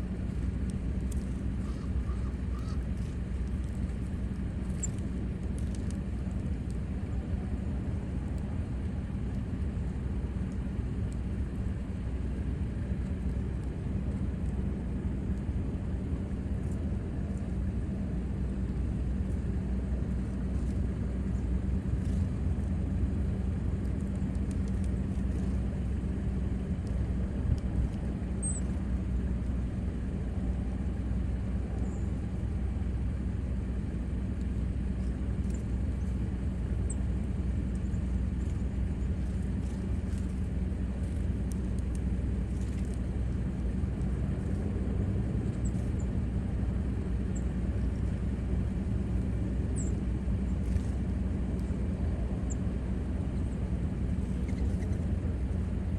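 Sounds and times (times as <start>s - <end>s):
constant hum: 0.0s - 55.9s
steady low rumble: 0.0s - 55.9s
small birds chirping: 1.2s - 3.1s, 4.7s - 5.0s, 28.4s - 28.8s, 49.8s - 50.9s, 53.3s - 55.2s.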